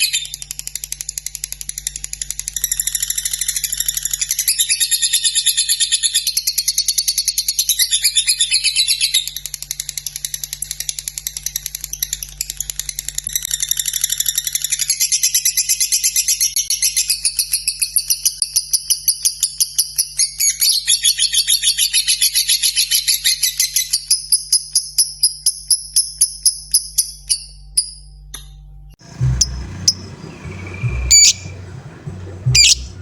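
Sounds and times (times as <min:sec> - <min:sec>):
bird chattering trill: 0:29.0 - 0:33.0.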